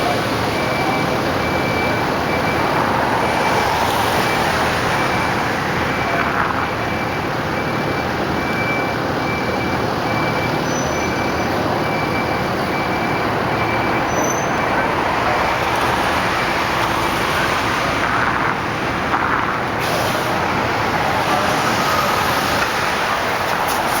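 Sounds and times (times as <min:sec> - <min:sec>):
diesel engine running: 0:00.0 - 0:24.0
street traffic: 0:00.0 - 0:24.0.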